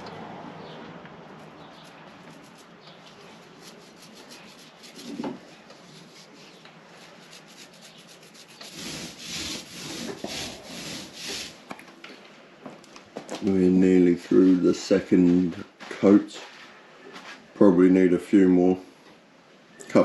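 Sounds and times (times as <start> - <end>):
paint brush rubbing strokes: 1.4 - 11.6.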